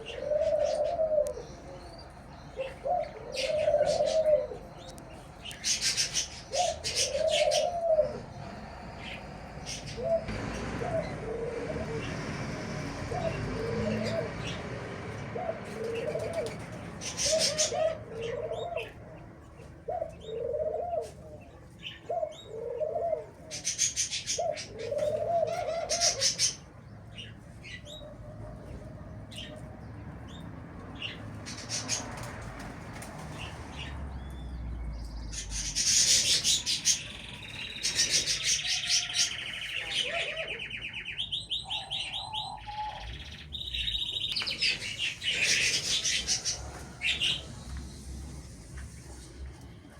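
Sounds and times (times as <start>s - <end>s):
dove cooing: 0.0s - 29.7s, 35.3s - 49.9s
small birds chirping and twittering: 0.0s - 49.9s.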